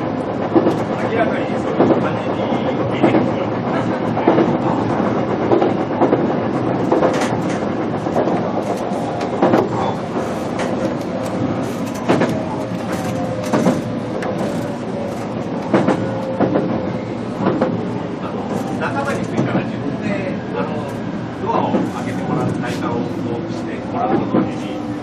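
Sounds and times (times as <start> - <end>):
sharp clicks and knocks: 5.5 - 9.8, 10.5 - 16.7.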